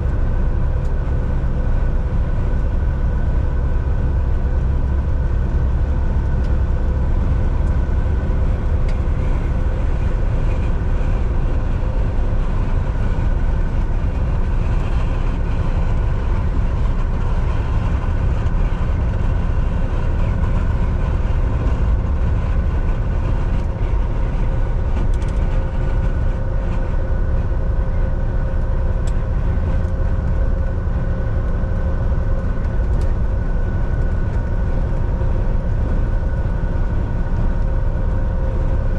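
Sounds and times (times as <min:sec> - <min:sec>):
steady whine: 0:00.0 - 0:38.9
truck engine and road rumble: 0:00.0 - 0:38.9.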